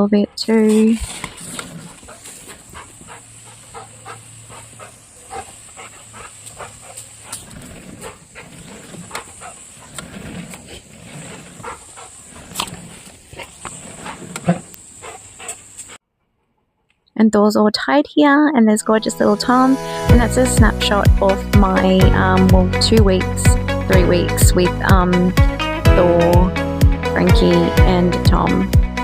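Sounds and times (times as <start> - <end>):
garden sprinkler hissing: 0.5 - 16.0
dog grunting: 1.1 - 15.6.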